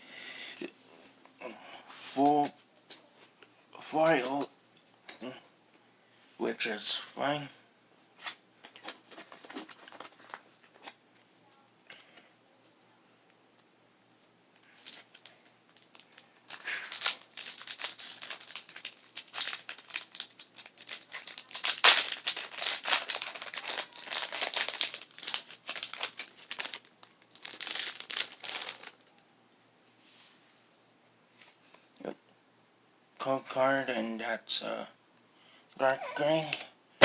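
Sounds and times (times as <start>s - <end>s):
foil wrapper tearing and crinkling: 14.8s - 29.1s.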